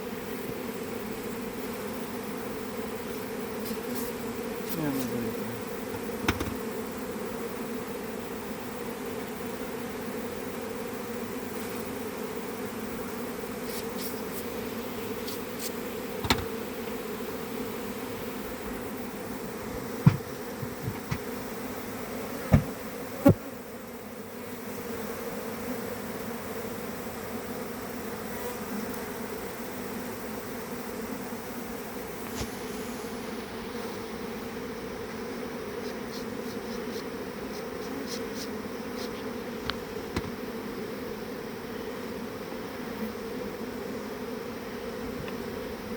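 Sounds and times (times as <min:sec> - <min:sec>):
bees buzzing: 0:00.0 - 0:45.9
sharp knocks: 0:05.9 - 0:06.6, 0:16.2 - 0:16.6, 0:19.8 - 0:21.3, 0:22.5 - 0:22.8.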